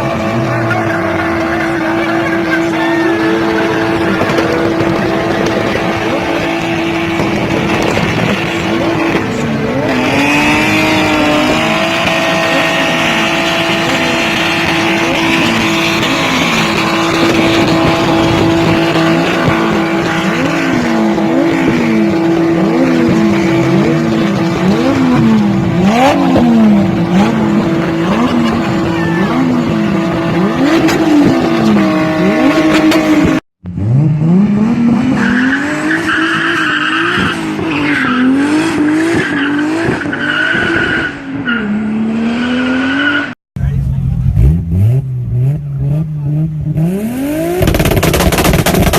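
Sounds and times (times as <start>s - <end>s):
tire squeal: 0.0s - 33.4s, 35.0s - 43.4s
car engine revving: 0.0s - 48.9s.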